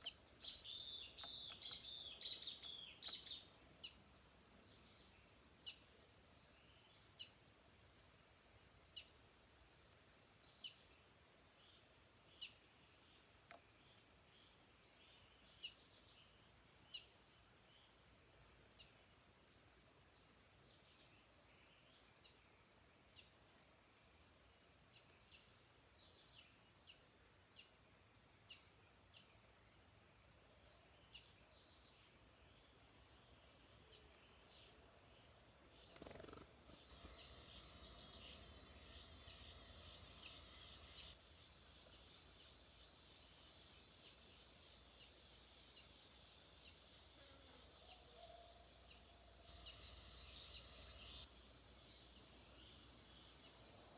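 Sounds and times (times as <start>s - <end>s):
forest birds chirping: 0.0s - 53.9s
high rapidly pulsing buzz: 35.8s - 41.8s, 49.0s - 53.6s.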